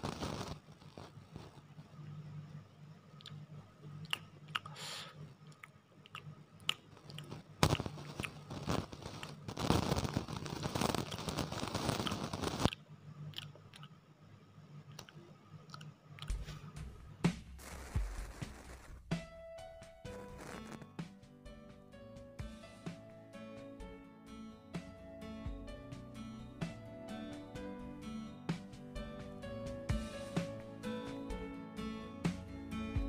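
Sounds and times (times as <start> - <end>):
low steady hum: 0.0 - 11.2
chewing and crunching snack: 3.2 - 9.4, 11.9 - 14.0, 14.9 - 16.7.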